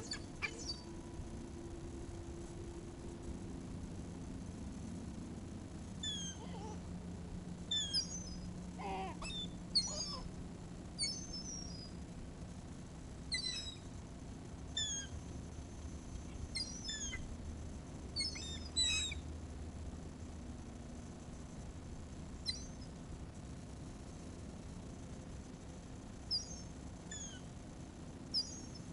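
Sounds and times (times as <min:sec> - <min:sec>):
seagulls calling: 0:00.0 - 0:00.9, 0:07.7 - 0:10.3.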